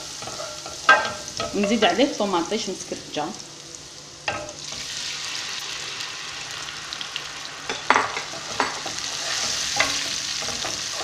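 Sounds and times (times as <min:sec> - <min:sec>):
tomatoes sizzling in hot oil: 0:00.0 - 0:11.0
wooden spoon scraping pan: 0:08.3 - 0:11.0.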